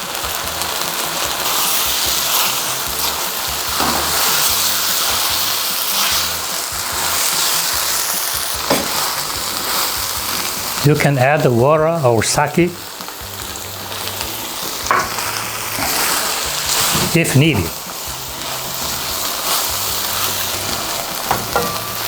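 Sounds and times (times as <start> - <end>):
food sizzling in a pan: 0.0 - 22.0
sharp scrapes in pan: 14.9 - 17.2.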